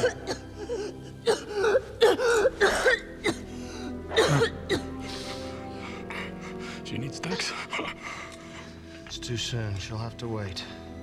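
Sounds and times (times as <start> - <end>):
person coughing hard: 0.0 - 5.2
film score music: 0.0 - 11.0.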